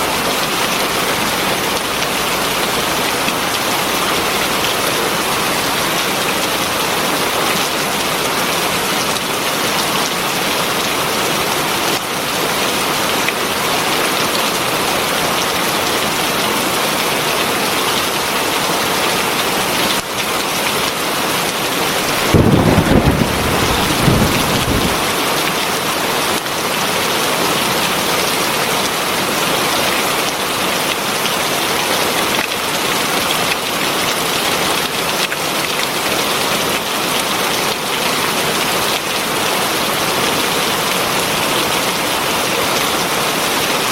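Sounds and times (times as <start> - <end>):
heavy rain: 0.0 - 43.9
low rumble of thunder: 22.1 - 25.2.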